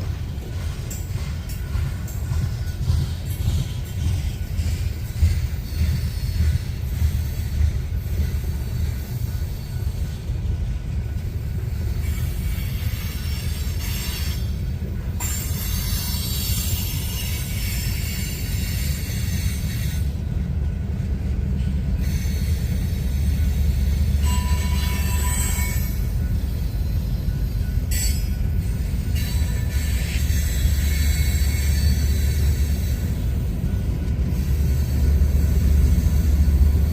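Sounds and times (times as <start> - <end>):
high-pitched wheel squeal: 22.0 - 33.3.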